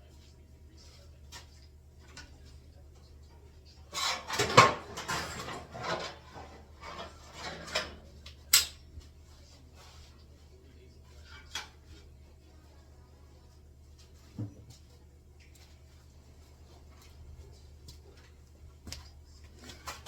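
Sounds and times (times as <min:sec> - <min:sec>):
metal parts clattering: 0:04.0 - 0:07.9.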